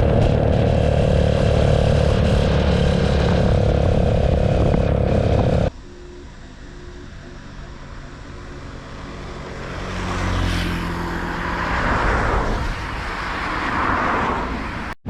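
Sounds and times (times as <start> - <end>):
vehicle engine running: 0.0 - 10.4
road and wind noise: 0.0 - 15.0.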